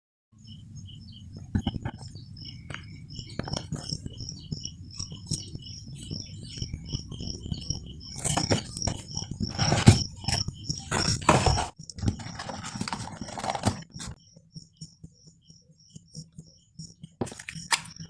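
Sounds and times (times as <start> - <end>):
box and packaging handling: 8.2 - 14.2, 17.2 - 17.9.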